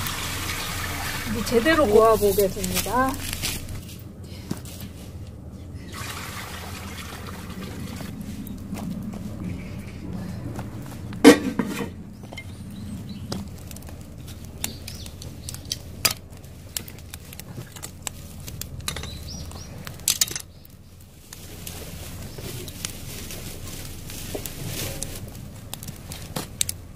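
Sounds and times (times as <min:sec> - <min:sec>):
cooking pot and utensils clattering: 0:11.2 - 0:12.5, 0:18.9 - 0:19.3.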